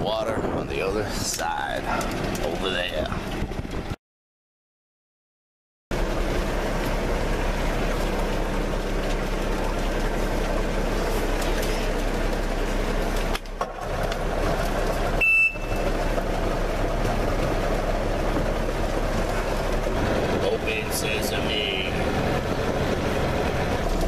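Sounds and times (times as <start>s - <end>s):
outboard motor running: 0.0s - 4.0s, 5.9s - 24.0s
short high beep: 15.2s - 15.8s.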